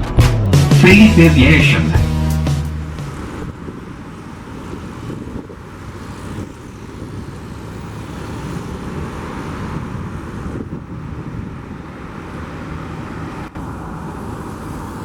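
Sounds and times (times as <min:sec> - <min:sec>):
wind noise on microphone: 0:02.8 - 0:07.5, 0:08.2 - 0:12.8.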